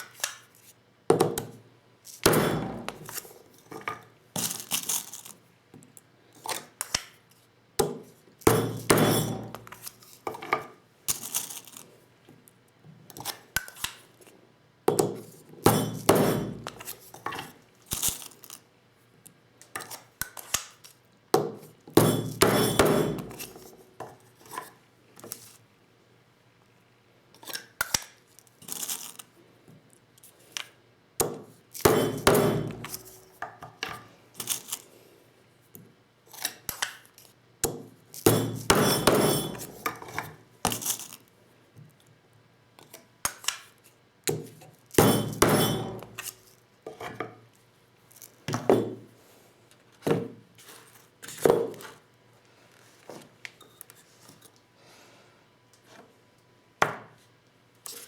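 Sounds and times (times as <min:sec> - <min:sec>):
metal tools clinking on a bench: 0:38.2 - 0:40.2, 0:45.0 - 0:46.3.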